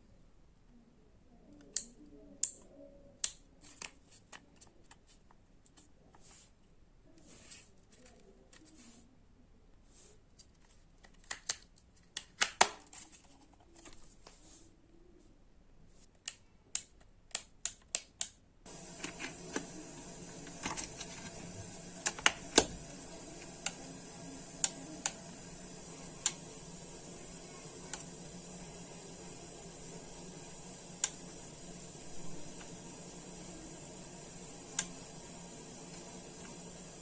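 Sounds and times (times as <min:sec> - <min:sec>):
steady hum and hiss: 0:18.7 - 0:37.0
plastic switch parts clicking: 0:22.0 - 0:22.8.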